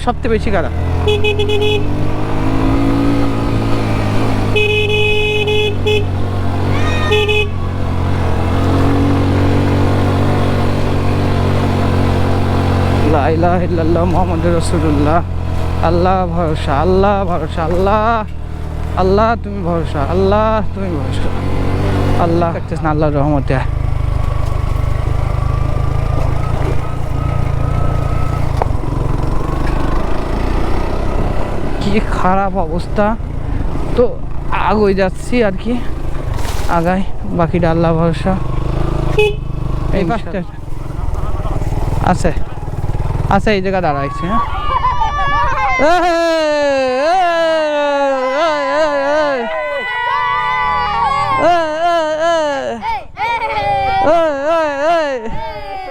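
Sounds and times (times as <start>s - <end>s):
motorcycle engine running: 0.0s - 47.8s
vehicle horn: 0.8s - 9.2s, 38.8s - 39.9s.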